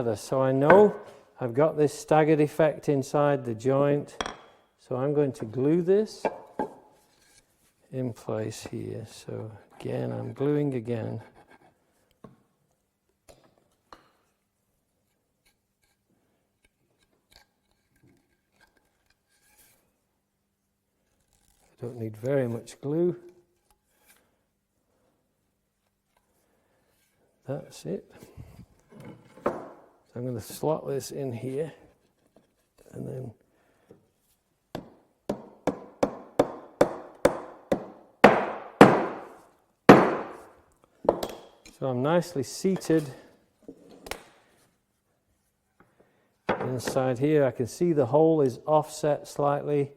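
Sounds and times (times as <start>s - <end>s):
knocking wood into joint: 34.8s - 40.4s.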